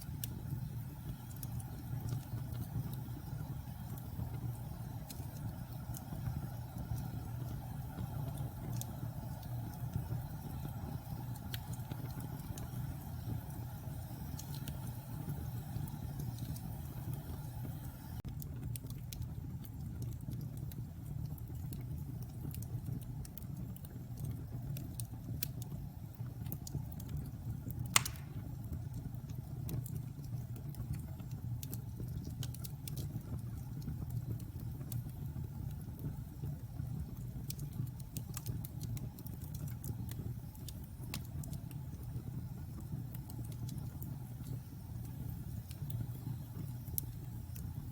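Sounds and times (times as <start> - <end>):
fire crackling: 0.0 - 47.9
low rumble of flames: 0.0 - 47.9
burning wood popping: 27.8 - 28.7.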